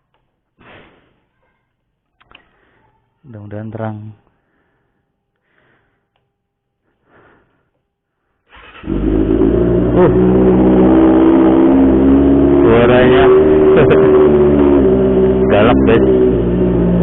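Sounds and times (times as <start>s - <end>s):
motorcycle engine starting and idling: 8.5s - 17.0s.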